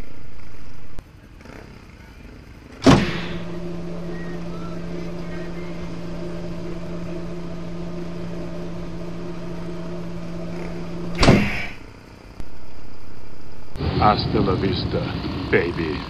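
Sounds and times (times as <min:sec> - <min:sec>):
sudden loud burst of noise: 0:02.8 - 0:14.4
motorcycle engine running: 0:02.9 - 0:11.8.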